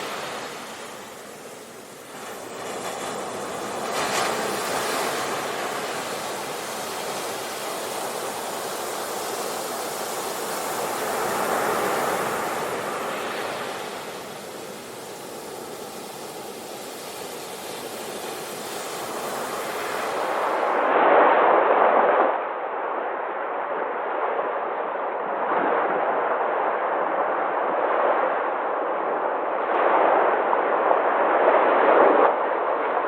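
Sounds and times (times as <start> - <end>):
sea waves breaking on shore: 0.0 - 20.9.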